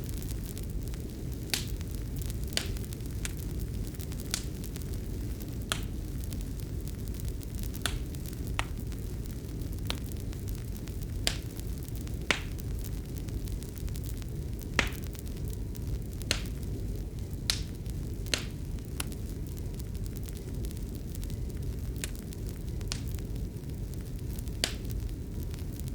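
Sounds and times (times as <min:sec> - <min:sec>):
sharp fire pops: 0:00.0 - 0:25.9
wood fire crackling: 0:00.0 - 0:25.9.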